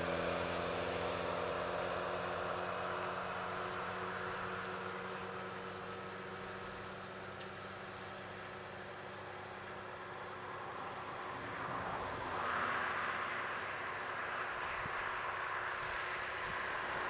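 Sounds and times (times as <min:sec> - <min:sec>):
tractor diesel engine running: 0:00.0 - 0:12.3.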